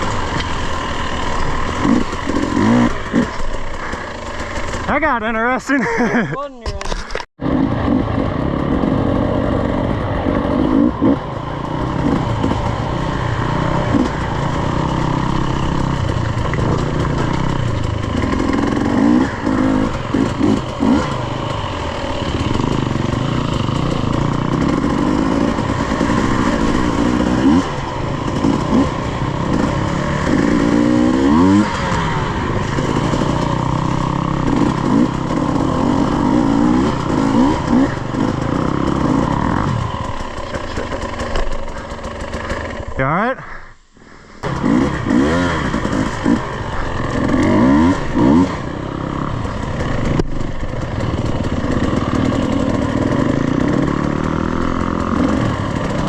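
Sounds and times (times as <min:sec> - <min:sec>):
dirt bike engine revving: 0:00.0 - 0:06.4, 0:07.1 - 0:56.0.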